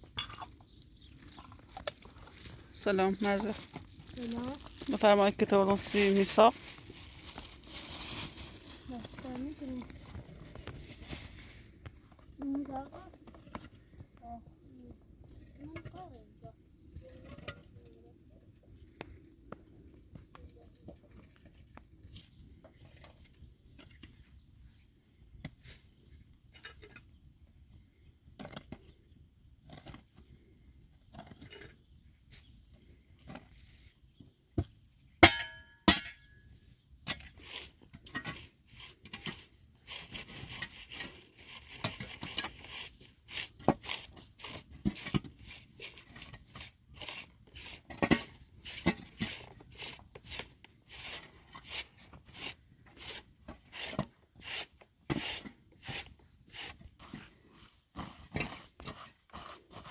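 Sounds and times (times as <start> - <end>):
small hard objects clicking: 0.0 - 7.5.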